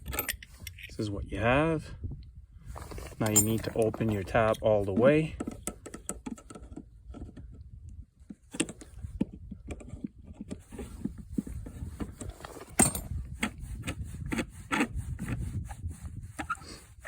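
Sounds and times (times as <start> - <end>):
metal tap clicks and scrapes: 2.8 - 15.4.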